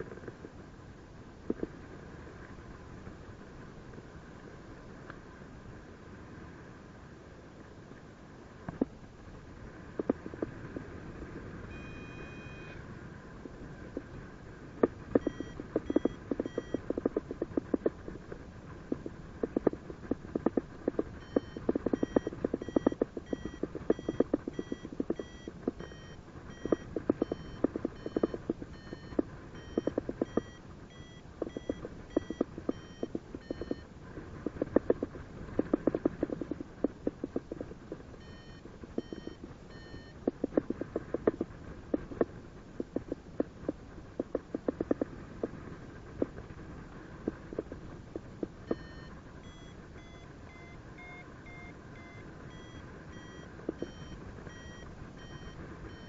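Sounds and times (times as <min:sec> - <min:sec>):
dense crackling clicks: 0:01.4 - 0:05.4, 0:08.6 - 0:56.0
variometer beeping: 0:11.7 - 0:12.8, 0:14.8 - 0:18.0, 0:18.9 - 0:35.0, 0:35.6 - 0:42.2, 0:47.6 - 0:56.0.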